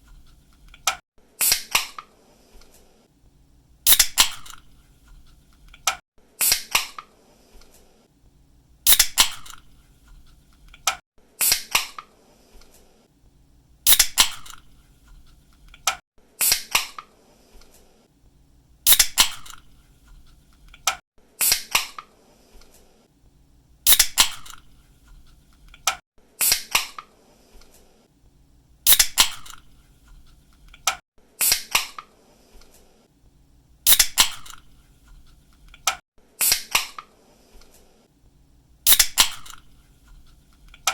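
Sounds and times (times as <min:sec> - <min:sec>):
can hissing: 0:03.9 - 0:04.6, 0:08.9 - 0:09.6, 0:13.9 - 0:14.6, 0:18.9 - 0:19.6, 0:23.9 - 0:24.6, 0:28.9 - 0:29.6, 0:33.9 - 0:34.6, 0:38.9 - 0:39.6.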